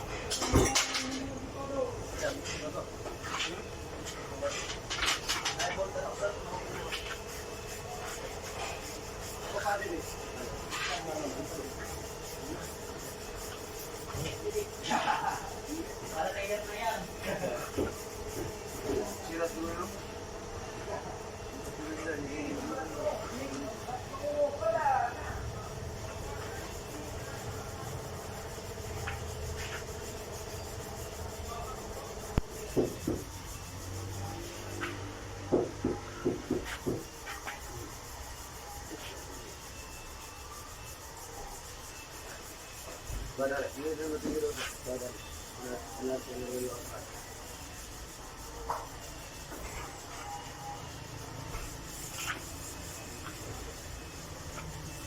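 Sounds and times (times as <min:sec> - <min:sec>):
rubbing and scraping: 0:02.2 - 0:20.0, 0:26.0 - 0:39.6, 0:41.6 - 0:55.0
knocks: 0:35.5 - 0:37.0
rubbing on car door panel: 0:51.1 - 0:55.0.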